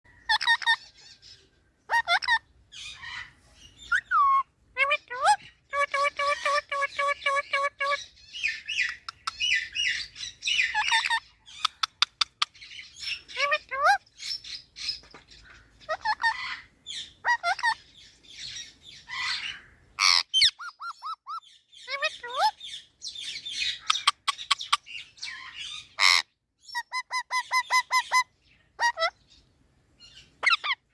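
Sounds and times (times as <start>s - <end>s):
parrot whistling and squawking: 0.2s - 1.2s, 1.9s - 12.4s, 15.8s - 17.8s, 19.0s - 22.6s, 23.6s - 29.2s, 30.4s - 30.8s.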